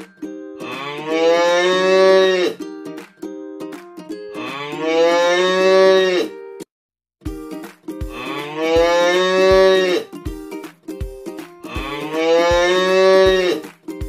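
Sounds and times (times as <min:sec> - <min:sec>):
cow mooing: 0:00.6 - 0:02.6, 0:04.4 - 0:06.3, 0:08.2 - 0:10.1, 0:11.7 - 0:13.6
light background music: 0:07.3 - 0:14.0.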